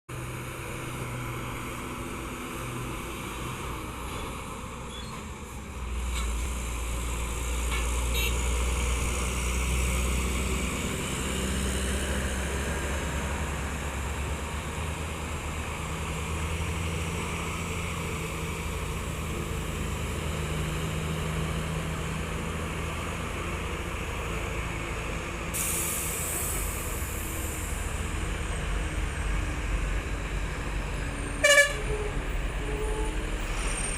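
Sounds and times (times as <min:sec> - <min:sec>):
diesel truck engines running: 0:00.1 - 0:33.9
air brake hiss: 0:25.5 - 0:27.7.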